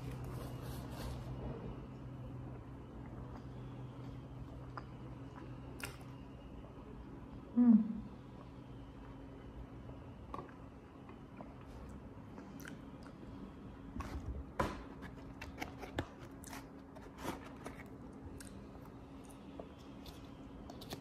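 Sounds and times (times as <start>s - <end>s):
faint low hum: 0.0s - 21.0s
person chewing food: 2.4s - 6.3s, 10.2s - 13.4s, 15.2s - 21.0s.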